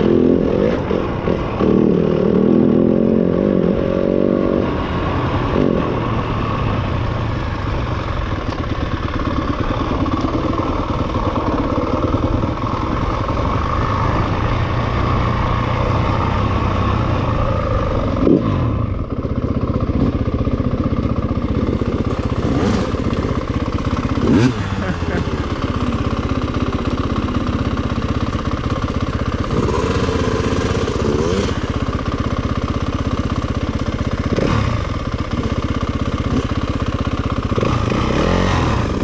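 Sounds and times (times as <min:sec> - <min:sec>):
dirt bike engine running: 0:00.0 - 0:39.0.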